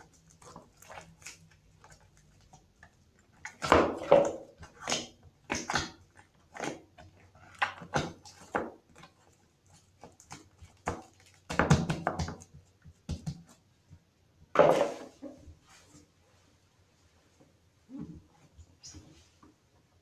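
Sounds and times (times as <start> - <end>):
wet slime squelching and popping: 0.0 - 13.6.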